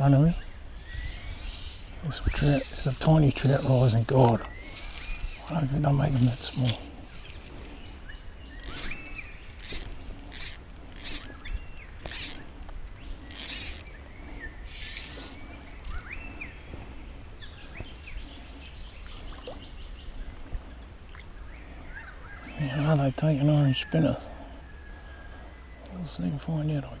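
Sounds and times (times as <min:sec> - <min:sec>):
raspy high bird calls: 0:00.7 - 0:16.7.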